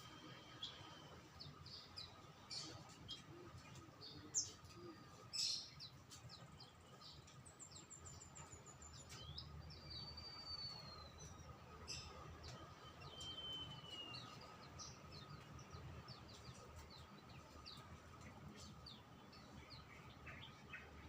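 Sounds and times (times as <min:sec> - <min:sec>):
songbird chirping: 0:00.0 - 0:21.0.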